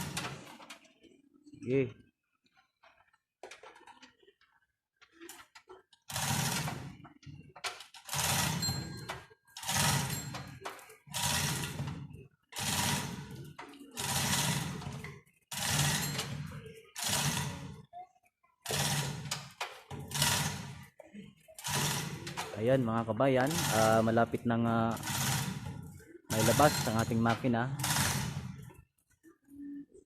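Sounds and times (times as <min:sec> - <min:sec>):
engine hoist rattling: 0:06.1 - 0:07.0, 0:07.7 - 0:17.7, 0:18.6 - 0:20.9, 0:21.6 - 0:22.8, 0:23.4 - 0:28.7.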